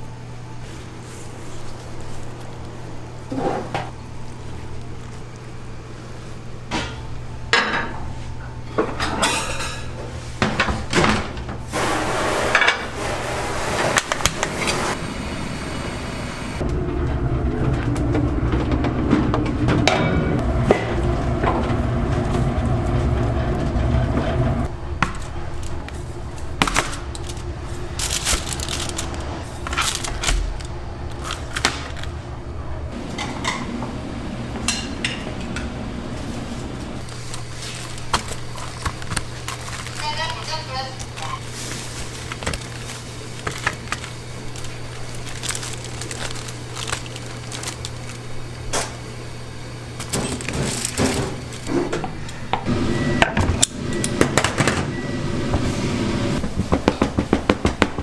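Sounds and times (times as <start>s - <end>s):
pans and utensils clinking: 8.8s - 10.0s
steady low hum: 13.7s - 58.0s
loud low rumble: 15.0s - 25.0s.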